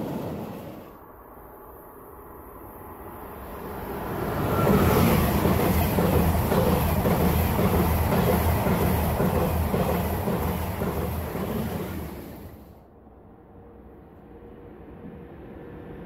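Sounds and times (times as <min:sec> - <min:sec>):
high-speed train passing: 0:00.0 - 0:16.0
wheels clattering over rails: 0:04.6 - 0:12.7.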